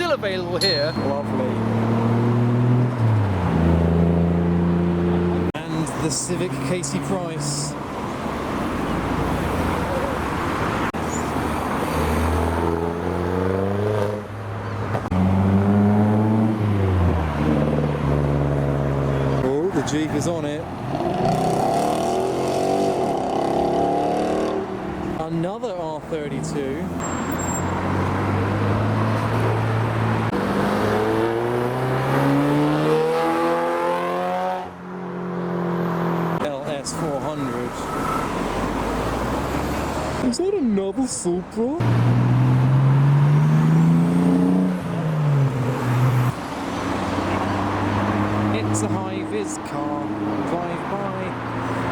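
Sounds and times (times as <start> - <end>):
car engines accelerating: 0.0 - 40.4, 41.8 - 51.9
road and tyre noise: 0.0 - 51.9
car engine accelerating: 27.2 - 36.4, 41.8 - 51.9.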